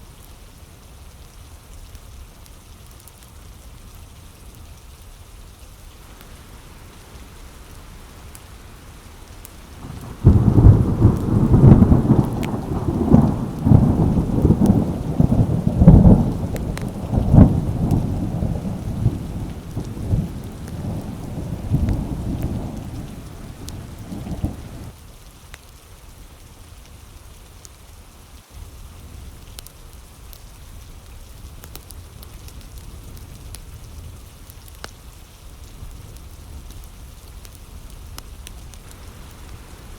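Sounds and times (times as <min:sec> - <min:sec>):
steady rain: 0:00.0 - 0:39.9
rolling thunder: 0:06.2 - 0:25.0.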